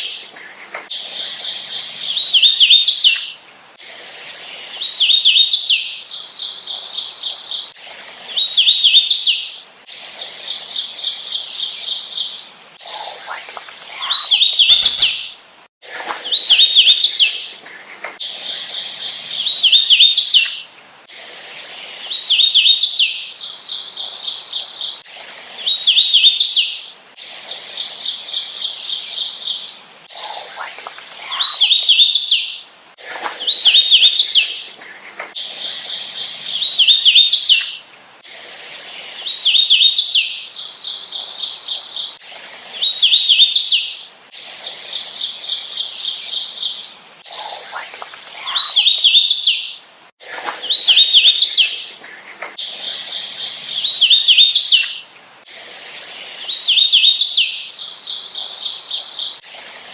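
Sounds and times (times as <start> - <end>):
bird singing whistled phrases: 0.9 - 3.4, 12.9 - 15.4, 18.2 - 20.7, 30.6 - 32.6, 35.4 - 37.8, 48.4 - 49.8.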